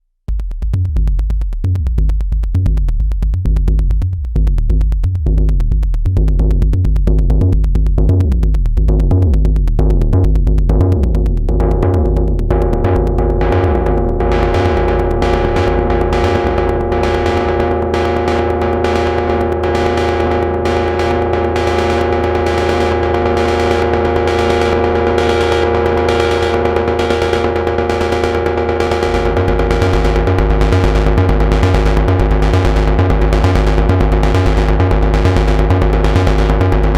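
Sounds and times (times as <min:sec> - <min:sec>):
synthesizer bass sequence: 0:00.4 - 0:36.9
steady higher synth tones: 0:11.6 - 0:36.9.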